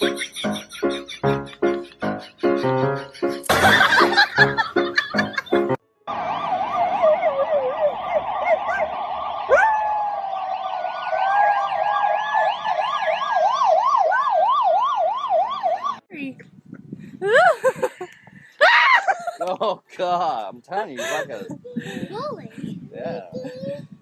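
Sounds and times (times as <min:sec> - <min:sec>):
long wavering siren tone: 0:06.1 - 0:16.0
siren warbling and yelping: 0:06.1 - 0:16.0.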